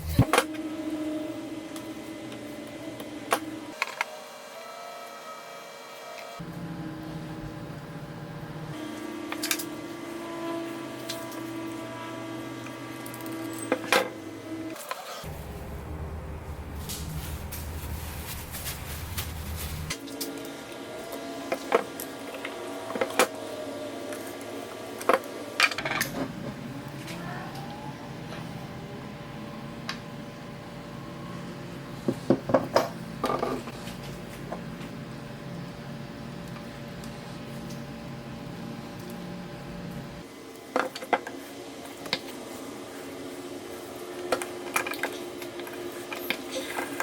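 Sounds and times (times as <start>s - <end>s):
steady hum: 0.0s - 3.8s, 14.2s - 20.0s.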